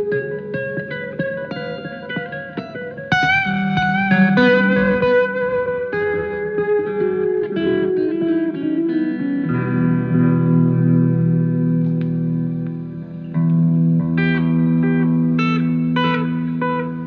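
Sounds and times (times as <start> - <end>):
electric guitar solo: 0.0 - 17.0.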